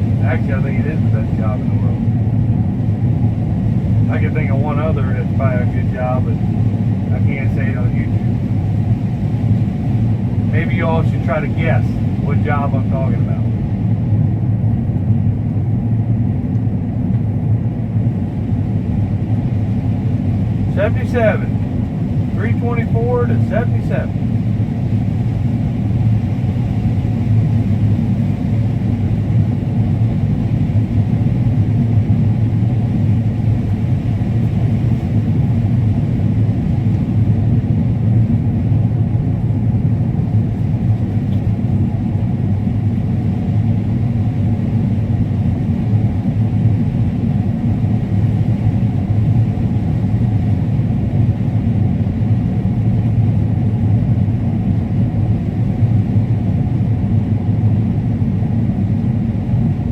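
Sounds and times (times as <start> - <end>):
combine harvester running: 0.0 - 2.8, 18.4 - 26.2.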